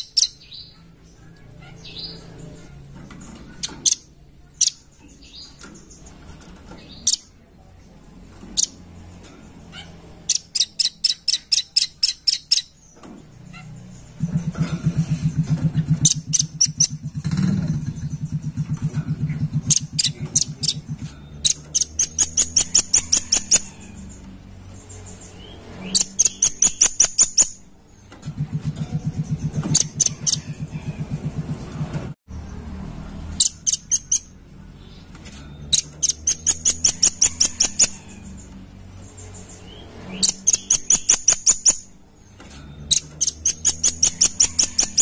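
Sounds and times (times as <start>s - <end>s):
bird sharp chit calls: 10.2s - 12.8s, 21.4s - 24.0s, 25.2s - 27.6s, 33.4s - 34.3s, 35.7s - 38.4s, 39.2s - 42.0s, 42.8s - 45.0s.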